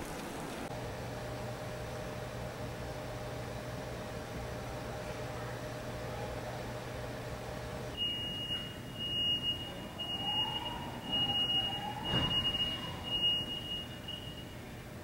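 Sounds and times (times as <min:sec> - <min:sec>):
electronic beeps: 0:08.0 - 0:14.6.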